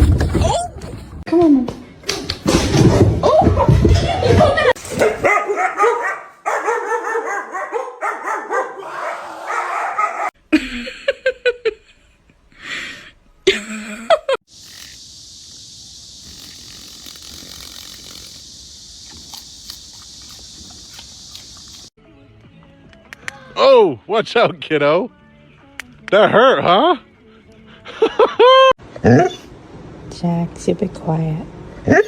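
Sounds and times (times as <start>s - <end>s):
dog barking and yipping: 5.0s - 10.3s
steady high hiss: 14.5s - 21.9s.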